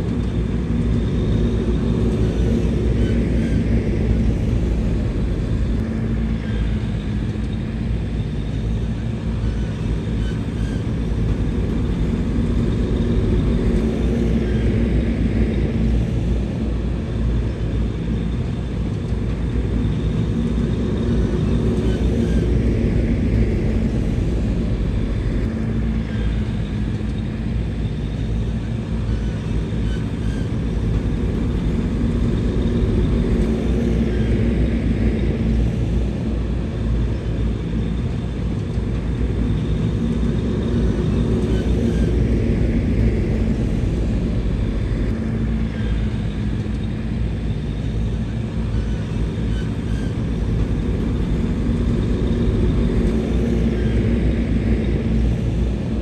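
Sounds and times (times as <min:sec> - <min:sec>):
bulldozer diesel engine rumbling: 0:19.4 - 0:56.0.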